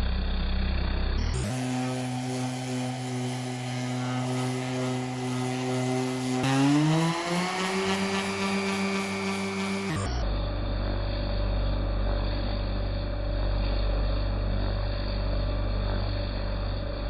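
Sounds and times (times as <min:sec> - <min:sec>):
palm sander motor humming: 0:01.1 - 0:10.3.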